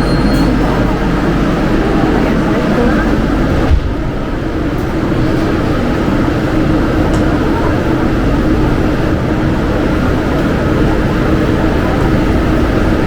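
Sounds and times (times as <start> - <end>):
train interior rumble: 0.0 - 13.0
low thump: 3.7 - 4.1.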